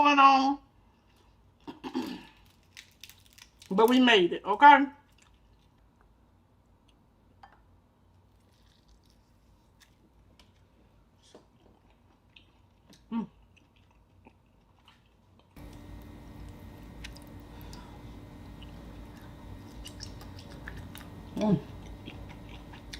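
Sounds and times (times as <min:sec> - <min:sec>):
chewing and mouth sounds: 0:05.1 - 0:05.9, 0:08.3 - 0:15.8, 0:16.8 - 0:22.9.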